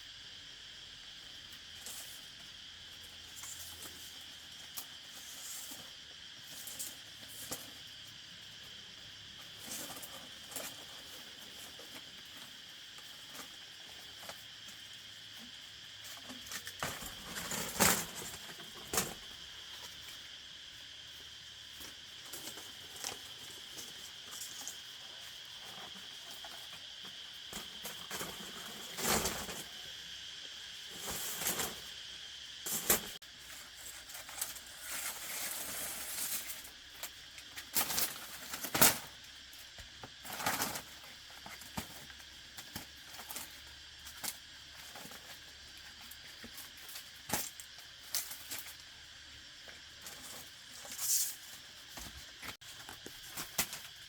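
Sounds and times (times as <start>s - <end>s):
rustles: 1.5s - 30.1s, 30.8s - 32.0s, 32.6s - 54.0s.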